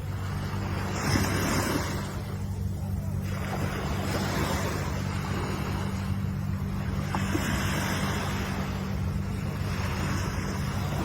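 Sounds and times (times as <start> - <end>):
low hum: 0.0 - 11.0
ocean waves washing ashore: 0.0 - 11.0.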